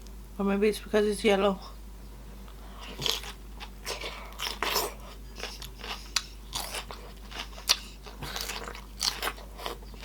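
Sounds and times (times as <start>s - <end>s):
person chewing crunchy food: 2.6s - 10.0s.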